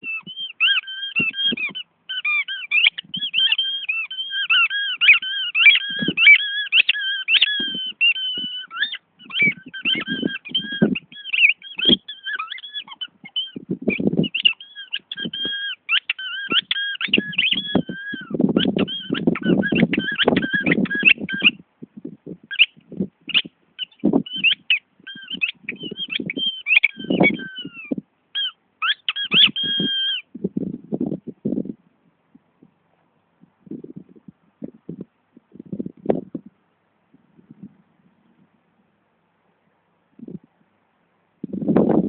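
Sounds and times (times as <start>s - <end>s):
squeaky toy squeaking: 0.0s - 21.6s, 22.5s - 30.3s.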